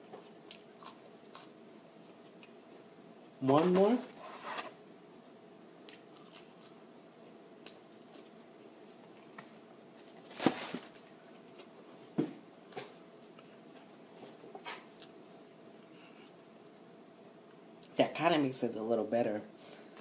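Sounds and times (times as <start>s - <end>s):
person chewing fries: 0.2s - 2.6s, 5.9s - 6.8s.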